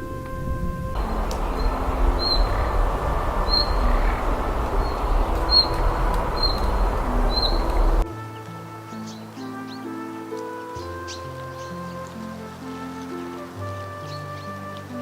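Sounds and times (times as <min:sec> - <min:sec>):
low rumble and hiss: 0:01.0 - 0:08.0
small bird chirping: 0:01.0 - 0:08.0.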